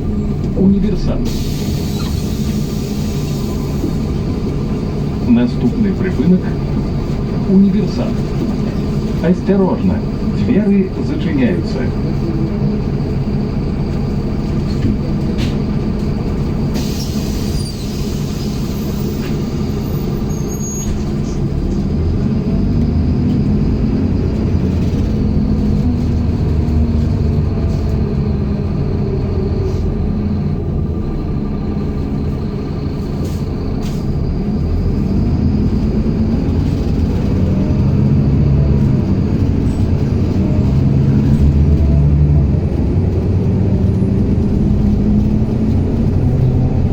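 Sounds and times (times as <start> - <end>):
bus diesel engine accelerating: 0.0 - 46.9
air hiss: 1.3 - 4.0, 16.7 - 19.0.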